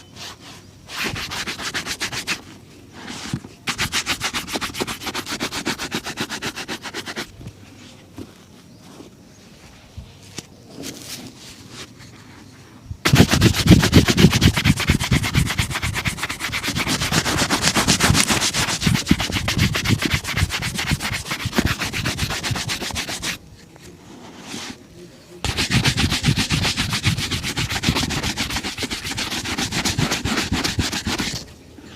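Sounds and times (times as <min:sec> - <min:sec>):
shoe being buffed: 0:03.0 - 0:07.3, 0:13.0 - 0:23.4, 0:25.4 - 0:31.4.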